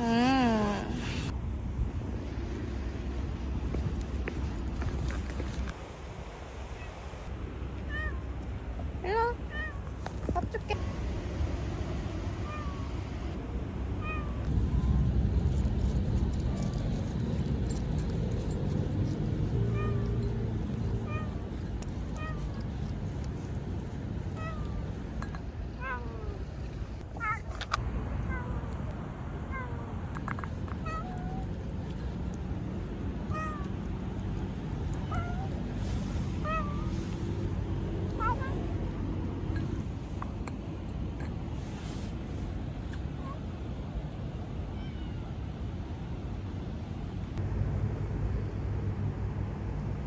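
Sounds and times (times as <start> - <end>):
steady low rumble: 0.0 - 50.0
cat meowing: 19.7 - 25.1, 27.2 - 27.7, 30.8 - 34.2, 34.8 - 37.5, 38.1 - 39.0.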